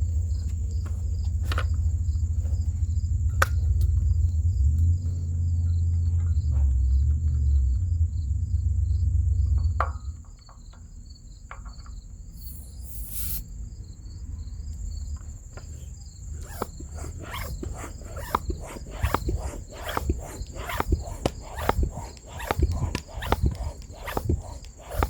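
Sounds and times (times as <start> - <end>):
insects chirping: 0.0 - 25.0
loud low rumble: 7.2 - 9.8
steady high buzz: 12.2 - 25.0.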